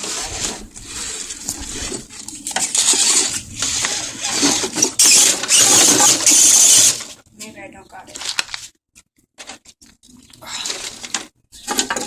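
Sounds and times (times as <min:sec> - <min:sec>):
rc truck clattering and scraping: 0:00.0 - 0:07.2, 0:10.6 - 0:12.0.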